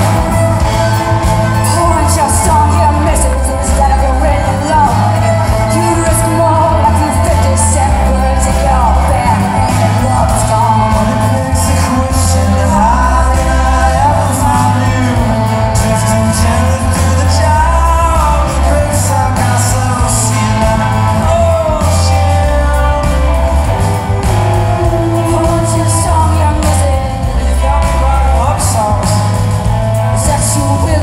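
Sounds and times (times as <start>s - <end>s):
steady bass notes: 0.0s - 31.0s.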